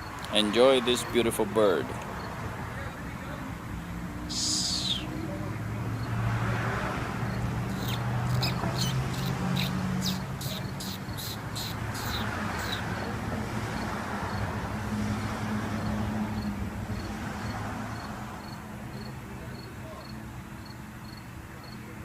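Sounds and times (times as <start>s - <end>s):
bird calling sharp high notes: 4.3s - 5.3s, 7.7s - 12.9s.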